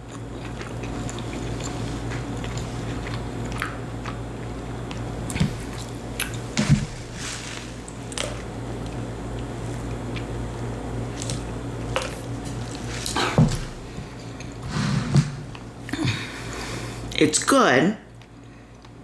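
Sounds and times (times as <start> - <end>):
person chewing food: 0.0 - 14.7.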